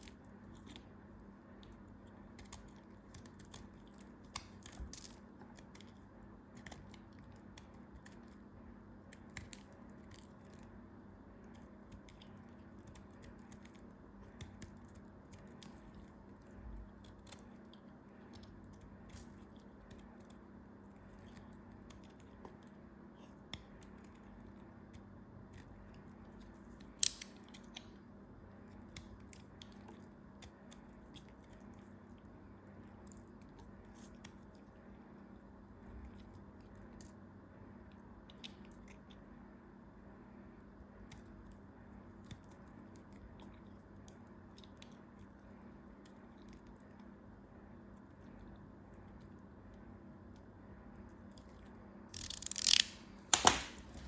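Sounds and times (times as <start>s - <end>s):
dry material crackling and breaking: 52.1s - 54.0s
loud snap: 52.8s - 54.0s.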